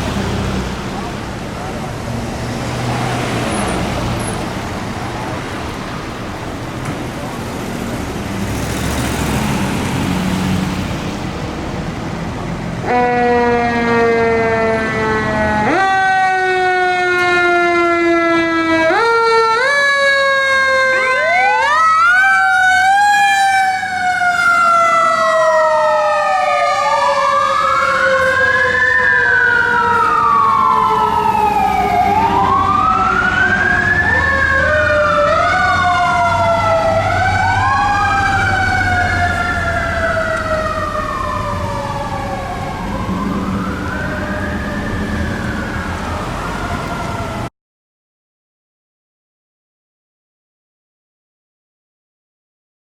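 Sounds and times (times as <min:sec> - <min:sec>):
electronic wail siren: 0:12.8 - 0:47.5
siren winding down and up: 0:12.9 - 0:47.5.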